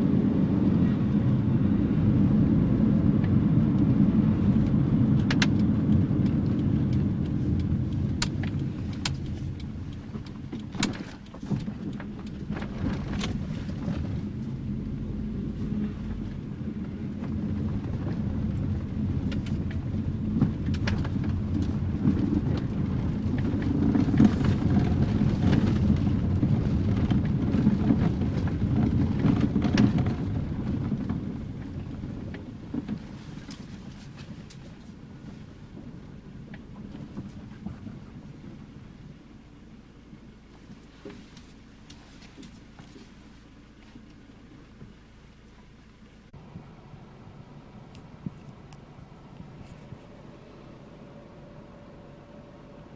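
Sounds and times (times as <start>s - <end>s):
car engine rumbling: 0.0s - 52.9s
sharp clicks and knocks: 4.6s - 14.2s.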